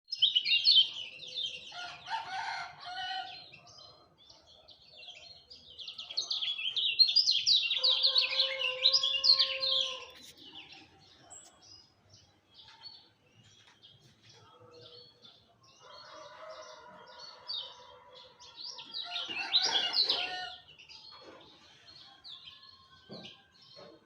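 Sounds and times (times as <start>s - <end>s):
songbird chirping: 0.1s - 24.0s
rooster crowing: 1.7s - 3.4s, 7.8s - 10.2s, 15.8s - 20.6s.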